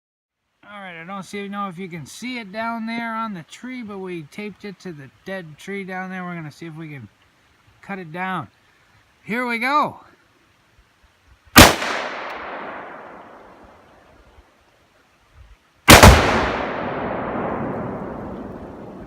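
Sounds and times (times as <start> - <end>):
explosive blast with rolling echo: 11.6 - 13.6, 15.9 - 19.0
rifle shot echoing: 11.6 - 13.7, 15.9 - 19.0.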